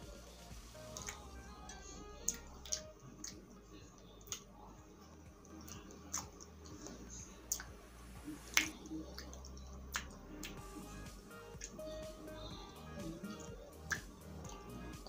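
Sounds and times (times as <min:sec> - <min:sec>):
person chewing with mouth clicks: 0:05.4 - 0:07.7.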